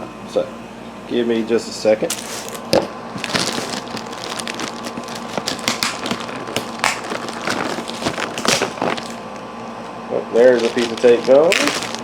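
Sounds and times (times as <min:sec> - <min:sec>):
cardboard box handled: 0:02.1 - 0:09.2, 0:10.5 - 0:12.0
packing tape peeled off: 0:02.1 - 0:09.3, 0:10.4 - 0:12.0.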